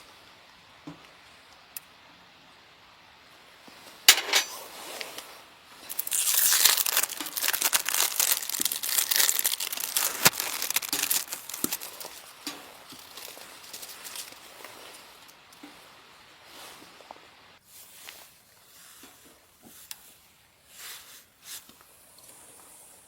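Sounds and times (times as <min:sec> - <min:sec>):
crinkly material crumpled: 0:05.8 - 0:16.8.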